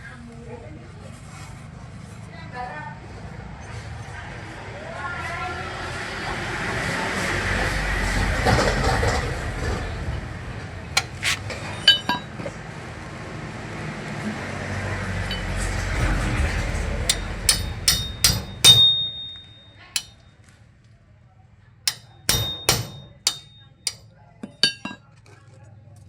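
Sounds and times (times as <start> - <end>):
hammer striking metal: 11.0 - 12.4, 15.3 - 16.0, 17.1 - 20.2, 21.9 - 25.0.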